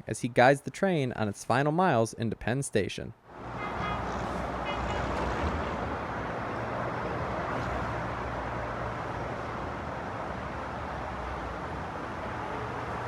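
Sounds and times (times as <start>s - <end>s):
high-speed train passing: 3.3s - 13.0s.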